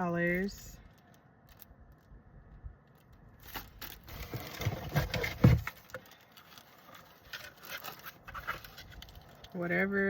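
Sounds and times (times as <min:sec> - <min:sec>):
packaged items rustling and clattering: 0:02.8 - 0:09.8.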